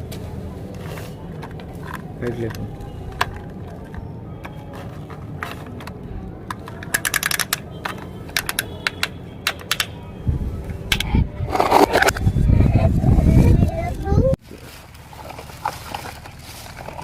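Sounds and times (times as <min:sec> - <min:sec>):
plastic toys clicking and clattering: 0:00.6 - 0:10.0, 0:10.7 - 0:12.3, 0:14.7 - 0:17.0.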